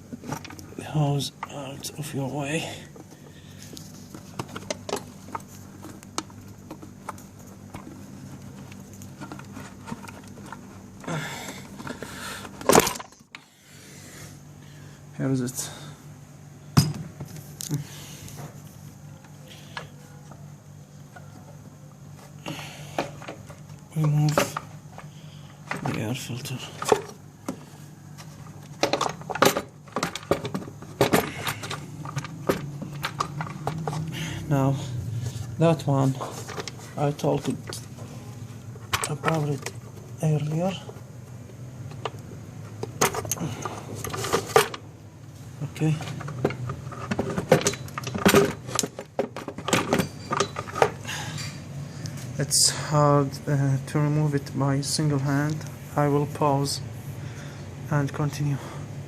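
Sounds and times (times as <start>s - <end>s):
low hum: 2.6s - 48.6s
tools being handled: 22.9s - 41.0s, 45.8s - 51.6s.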